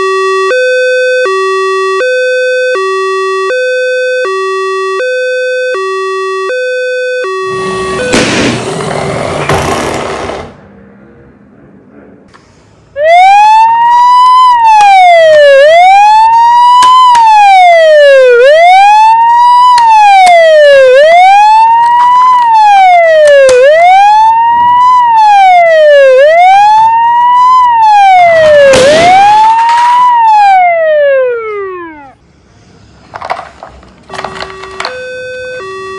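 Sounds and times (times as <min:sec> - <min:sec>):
emergency vehicle siren wailing: 0:00.0 - 0:10.5, 0:13.0 - 0:32.2, 0:34.1 - 0:35.9
short noisy burst: 0:07.5 - 0:10.6.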